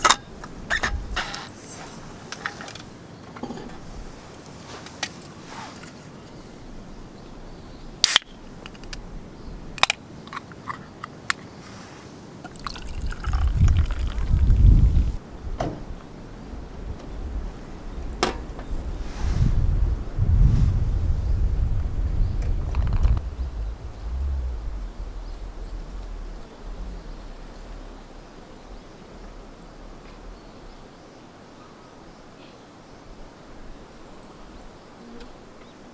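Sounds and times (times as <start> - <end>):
liquid pouring: 12.5 - 15.2
loud low rumble: 19.8 - 31.2.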